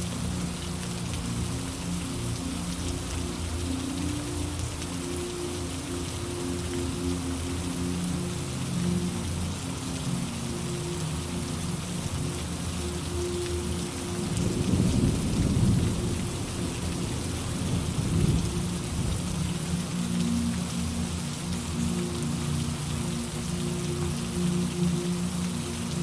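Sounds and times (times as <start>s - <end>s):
rain hissing: 0.0s - 26.0s
thunder rumbling: 14.4s - 19.3s.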